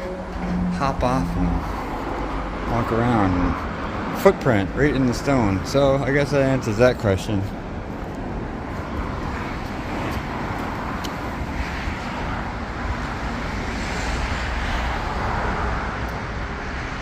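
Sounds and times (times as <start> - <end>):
passing cars hiss and rumble: 0.0 - 17.0.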